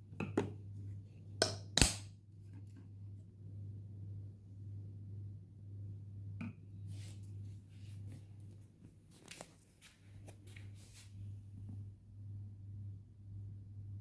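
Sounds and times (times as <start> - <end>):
soft rustling: 6.9 - 11.3.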